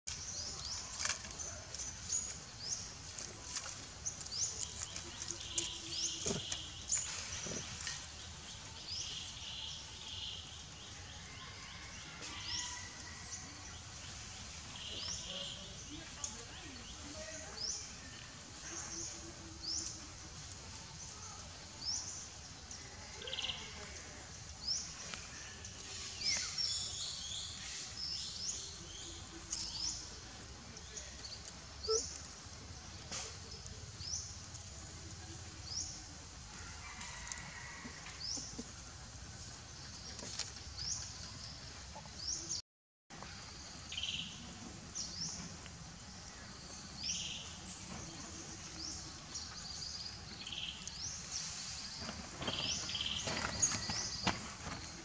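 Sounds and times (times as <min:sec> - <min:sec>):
steady background hiss: 0:43.2 - 0:55.0.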